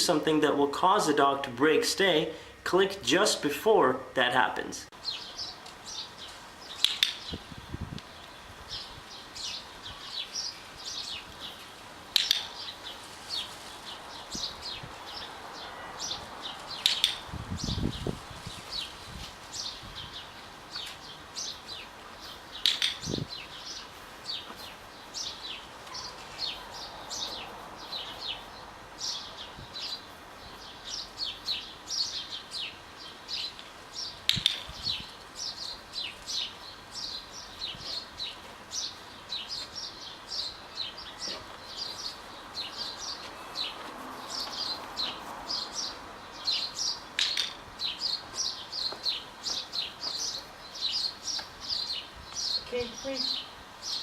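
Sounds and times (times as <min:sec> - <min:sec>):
small birds chirping: 0:00.4 - 0:54.0
sharp clicks: 0:06.8 - 0:07.3, 0:12.1 - 0:12.5, 0:16.8 - 0:17.2, 0:22.6 - 0:23.1, 0:34.3 - 0:34.8.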